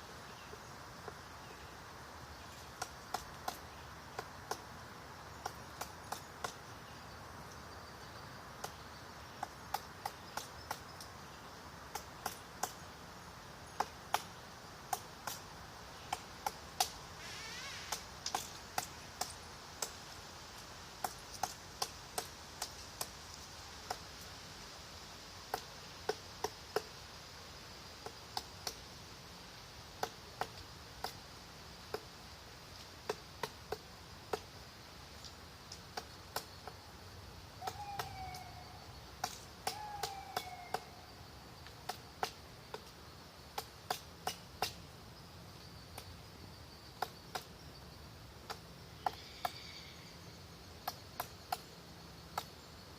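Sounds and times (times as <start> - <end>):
faint high hiss: 0.0 - 52.9
woodpecker pecking at wood: 2.6 - 4.7, 5.4 - 6.7, 9.4 - 11.1, 11.8 - 12.8, 13.7 - 17.0, 17.8 - 20.0, 21.0 - 24.2, 25.5 - 26.9, 30.0 - 31.2, 33.0 - 34.5, 39.2 - 41.0, 41.7 - 44.8, 47.0 - 47.6
bird call falling in pitch: 37.6 - 38.8, 39.7 - 41.0.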